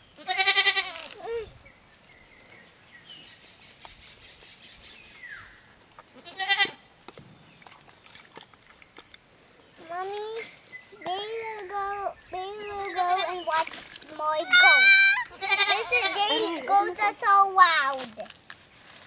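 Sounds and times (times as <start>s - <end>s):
goats bleating: 0.2s - 1.1s, 6.2s - 6.8s, 14.4s - 16.6s.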